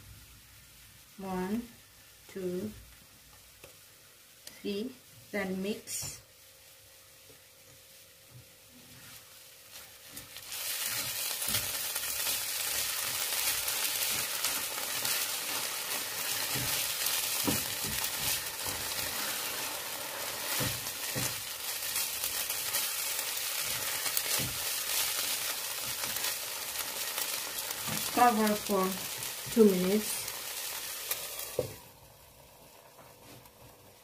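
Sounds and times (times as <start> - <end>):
food sizzling in a frying pan: 0.0 - 34.0
spatula scraping a pan: 9.1 - 28.2.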